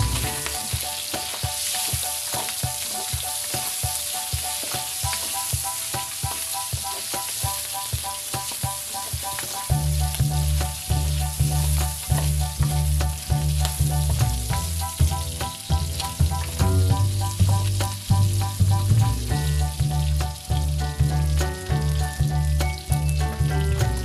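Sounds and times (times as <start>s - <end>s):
background music with bass line: 0.0s - 0.9s, 9.7s - 24.0s
meat sizzling in a wok: 0.0s - 24.0s.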